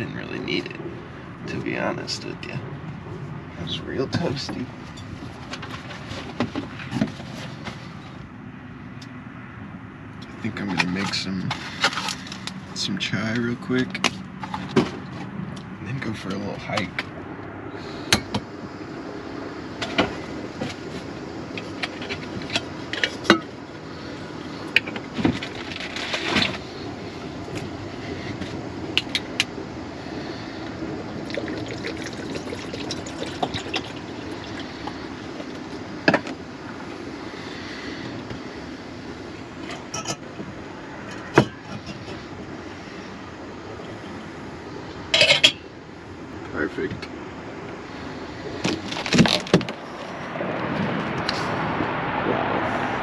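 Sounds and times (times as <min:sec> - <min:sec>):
water pouring into a pot: 0:31.2 - 0:35.6.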